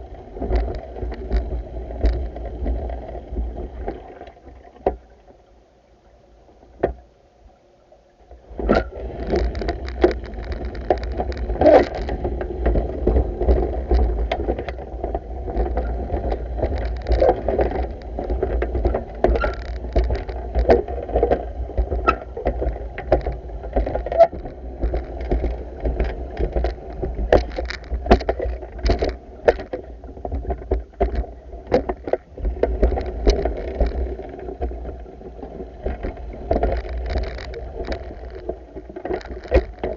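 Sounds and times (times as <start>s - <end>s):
water sloshing: 8.4s - 39.9s.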